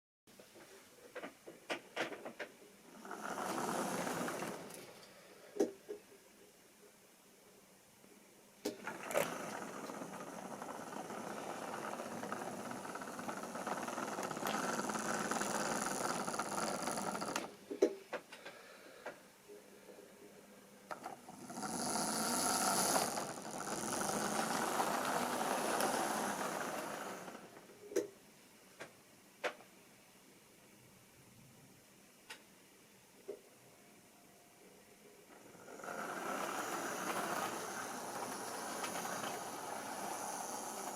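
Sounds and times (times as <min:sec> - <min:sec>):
model train wheels rattling: 0:02.9 - 0:05.1, 0:08.7 - 0:17.5, 0:20.9 - 0:27.6, 0:35.3 - 0:40.9.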